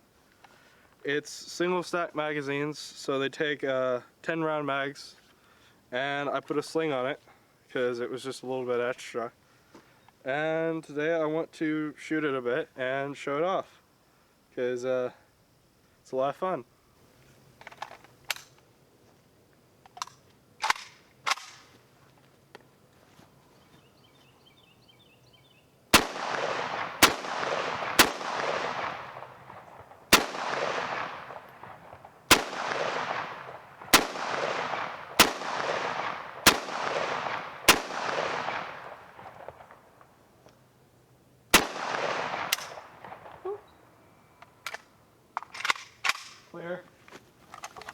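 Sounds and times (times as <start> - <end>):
rifle shots with echo: 25.9 - 39.9, 41.5 - 43.5.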